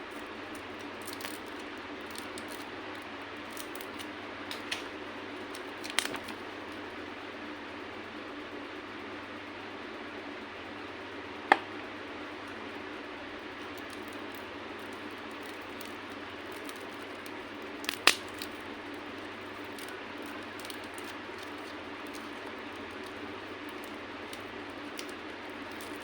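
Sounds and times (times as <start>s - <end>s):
hard candy cracking: 0.0s - 6.8s, 13.5s - 26.0s.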